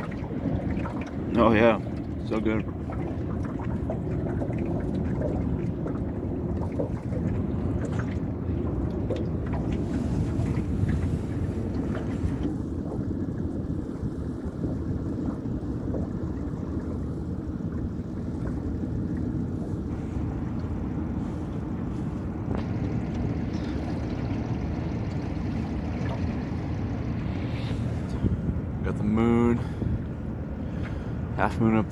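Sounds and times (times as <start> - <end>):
outboard motor running: 0.0 - 31.9
wind buffeting microphone: 0.0 - 31.9.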